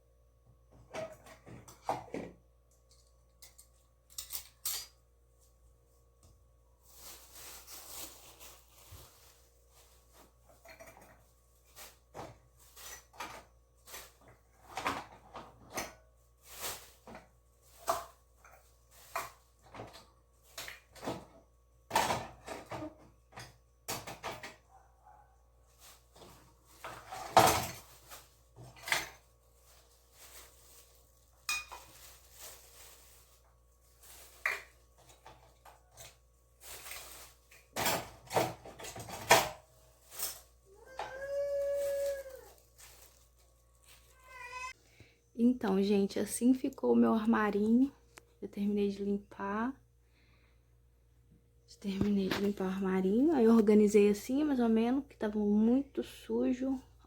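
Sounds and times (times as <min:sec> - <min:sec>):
dishes and cutlery clattering: 0:10.6 - 0:11.2.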